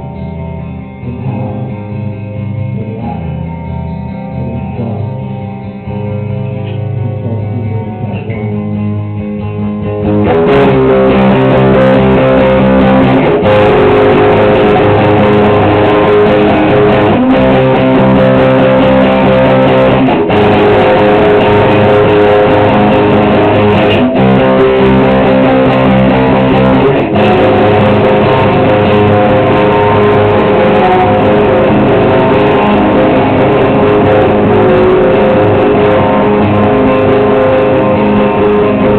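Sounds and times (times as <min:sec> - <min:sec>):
live rock band playing: 0:00.0 - 0:38.9
picked electric guitar: 0:00.0 - 0:38.9.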